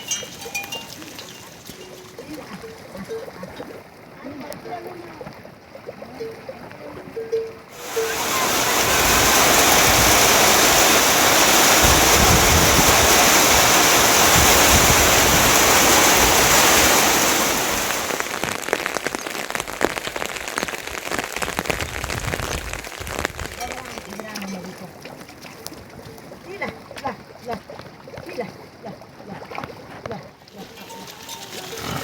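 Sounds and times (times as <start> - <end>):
heavy rain falling: 0.0 - 2.8, 7.7 - 24.5.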